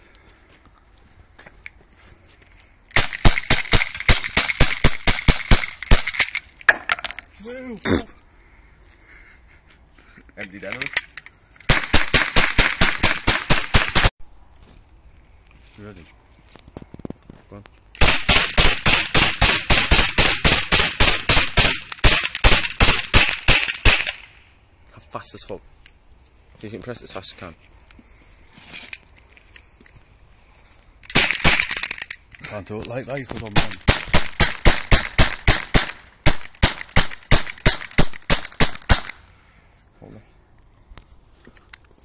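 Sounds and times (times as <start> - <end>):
air pistol rapid cracks: 2.9 - 6.5, 11.7 - 14.1, 18.0 - 24.4, 31.0 - 32.3, 33.5 - 39.2.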